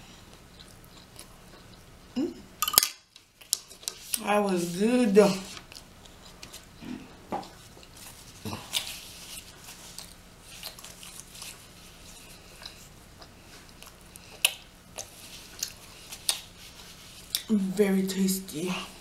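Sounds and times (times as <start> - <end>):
chewing close up: 0.3 - 2.2, 5.6 - 17.5.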